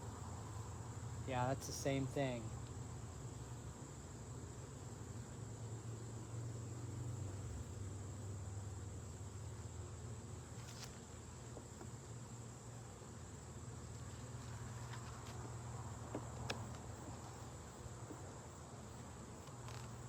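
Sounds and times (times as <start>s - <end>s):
honeybees humming: 0.0s - 20.0s.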